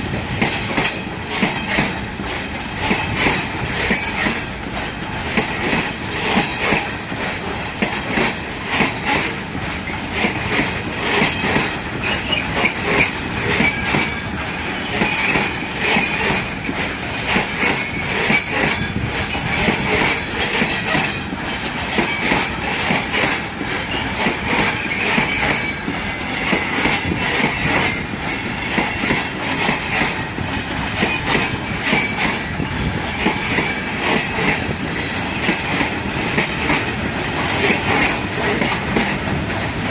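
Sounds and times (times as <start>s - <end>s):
train wheels clacking on rails: 0.0s - 39.9s
high wheel squeal: 11.1s - 16.4s, 17.5s - 30.4s, 31.0s - 34.4s.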